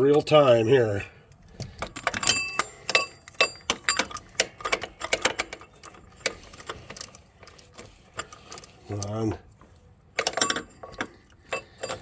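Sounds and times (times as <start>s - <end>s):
metal wrench clicking and clinking: 1.8s - 7.2s, 10.2s - 12.0s.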